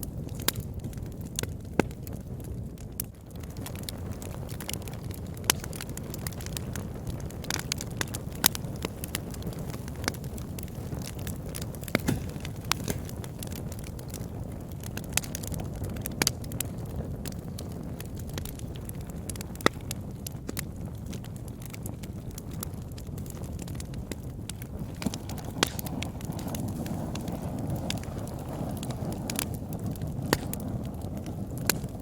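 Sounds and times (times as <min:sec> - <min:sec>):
fire crackling in a fireplace: 0:00.0 - 0:32.0.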